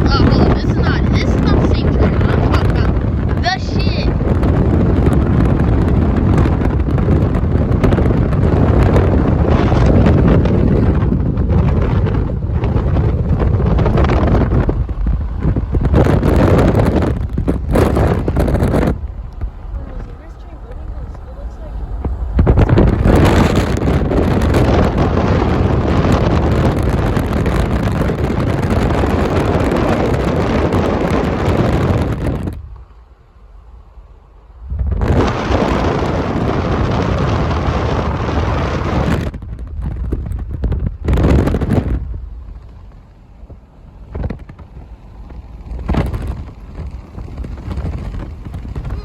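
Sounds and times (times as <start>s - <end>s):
diesel locomotives idling: 0.0s - 4.1s, 15.0s - 23.1s
wind buffeting microphone: 0.0s - 49.0s.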